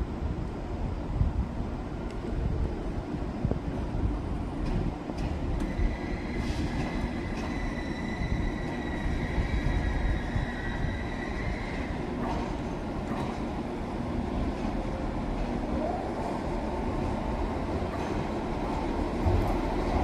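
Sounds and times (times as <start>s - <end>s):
train rumbling: 0.0s - 20.0s
high steady squeal: 5.6s - 12.0s.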